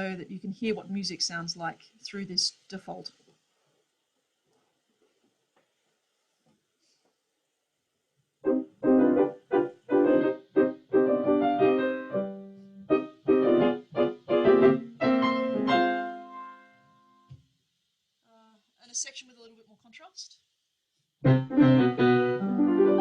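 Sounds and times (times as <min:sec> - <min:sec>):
piano playing detached chords: 0:08.4 - 0:16.8, 0:21.2 - 0:23.0.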